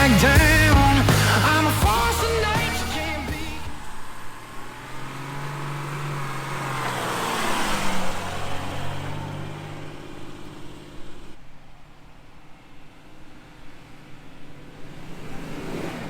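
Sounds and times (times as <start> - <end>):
vehicle engine humming: 0.0 - 11.4.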